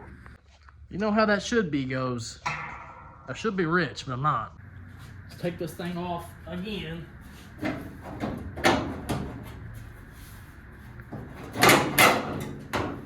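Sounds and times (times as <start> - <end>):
loud bangs: 2.4 - 4.0
sheet metal clanking and scraping: 7.4 - 13.0.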